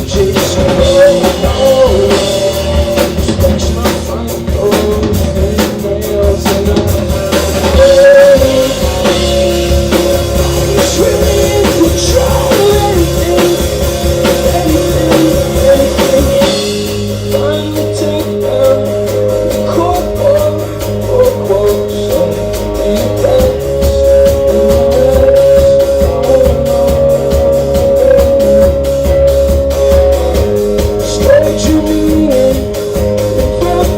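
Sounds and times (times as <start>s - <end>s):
drum kit beat: 0.0s - 33.9s
guitar chords: 0.0s - 33.9s.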